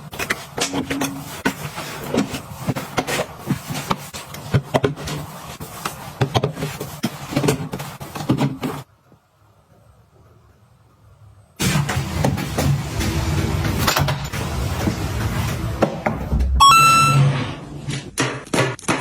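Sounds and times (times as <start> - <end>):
items clicking and knocking: 0.0 - 8.9, 17.9 - 19.0.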